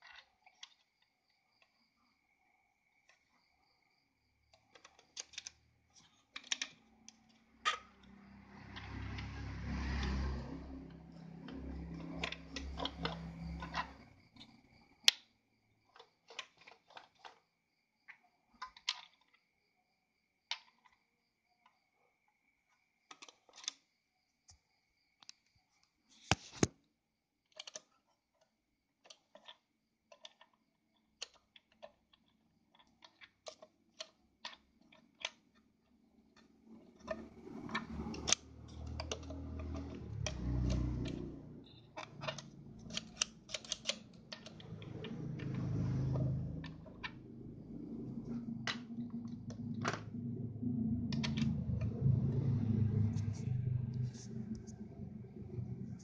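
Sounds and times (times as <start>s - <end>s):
sewing machine parts clicking: 4.5s - 15.2s, 36.4s - 49.4s.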